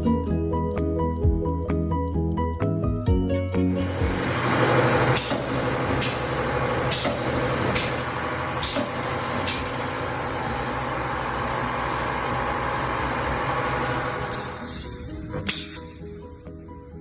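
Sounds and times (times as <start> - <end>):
welding machine clicks: 4.8 - 10.8.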